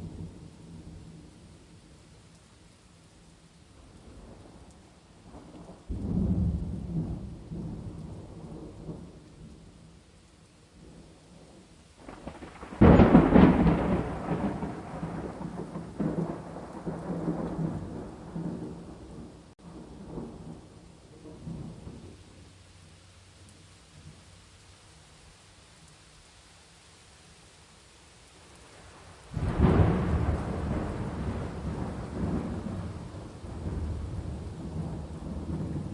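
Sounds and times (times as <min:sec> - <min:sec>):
rain hissing: 0:00.0 - 0:35.9
thunder rumbling: 0:05.2 - 0:09.6, 0:12.0 - 0:22.4, 0:28.8 - 0:35.9.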